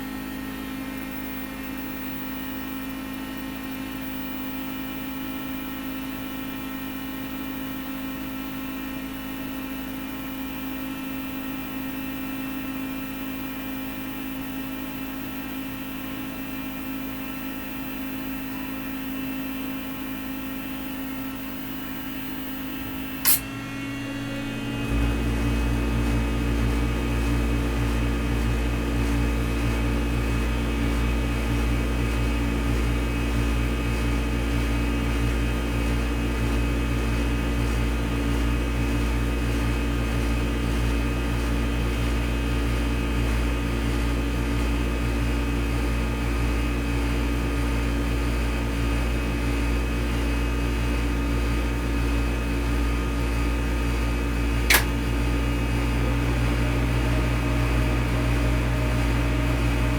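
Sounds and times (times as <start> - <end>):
film projector running: 0.0 - 59.9
sharp click: 23.2 - 23.5, 54.7 - 55.0.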